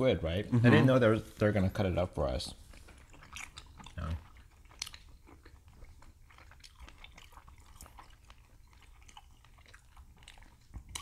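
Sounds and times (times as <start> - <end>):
close chewing: 2.5 - 11.0.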